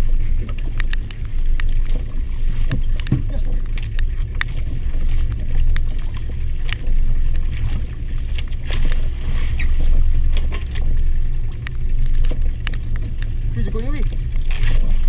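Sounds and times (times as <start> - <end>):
boat engine rumbling: 0.0 - 15.0
sharp clicks and knocks: 0.4 - 7.6.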